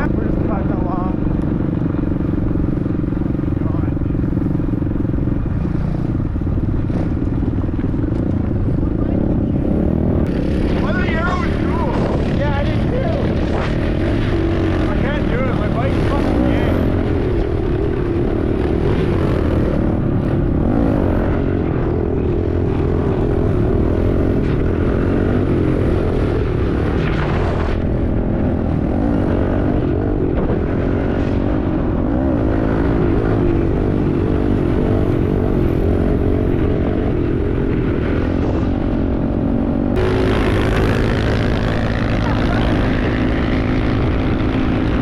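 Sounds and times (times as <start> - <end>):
small motorbike engine revving: 39.9 - 45.0.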